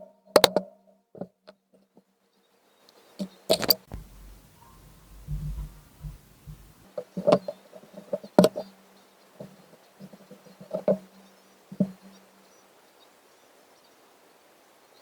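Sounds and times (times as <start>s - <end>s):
faint low hum: 2.7s - 13.9s
hard objects knocking and clicking: 3.5s - 6.9s.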